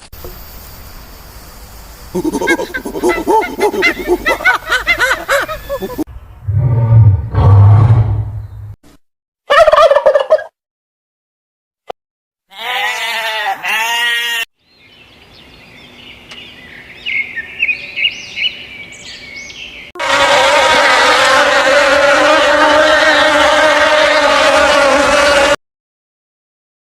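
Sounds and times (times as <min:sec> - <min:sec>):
loud steady insect buzz: 0:00.0 - 0:06.0, 0:20.0 - 0:25.6
animal bleating: 0:12.5 - 0:14.5, 0:20.0 - 0:25.6.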